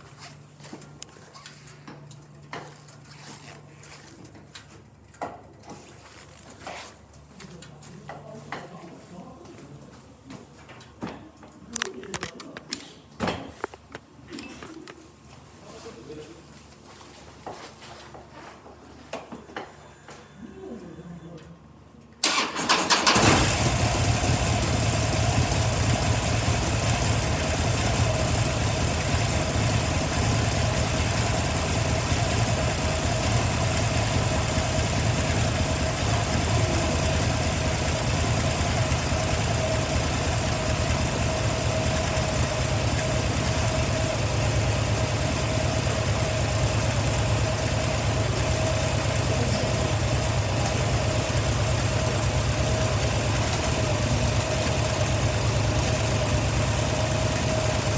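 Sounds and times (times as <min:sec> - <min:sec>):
motorcycle engine idling: 0:22.3 - 0:57.9.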